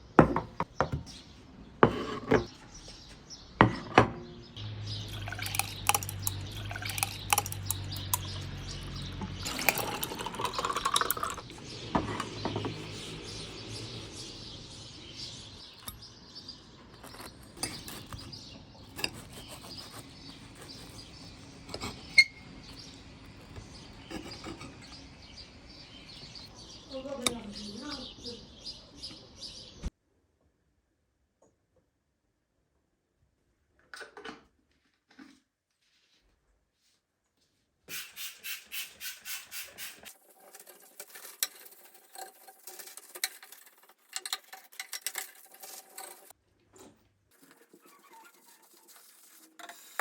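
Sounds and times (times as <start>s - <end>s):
liquid pouring into container: 5.0s - 8.5s, 9.4s - 11.6s
water running: 5.0s - 13.2s
dishes and utensils clinking: 5.2s - 8.6s, 9.2s - 11.4s.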